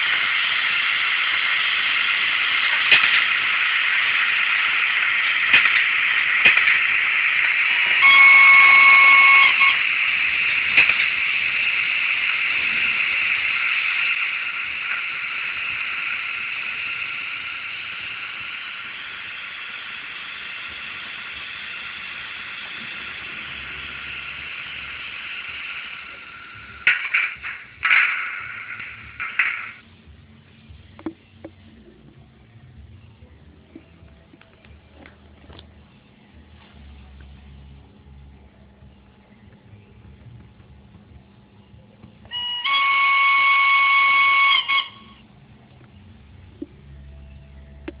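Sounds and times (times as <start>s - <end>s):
model locomotive running hiss: 0.0s - 30.8s, 42.2s - 45.4s
locomotive horn blast: 7.9s - 9.8s, 42.3s - 45.2s.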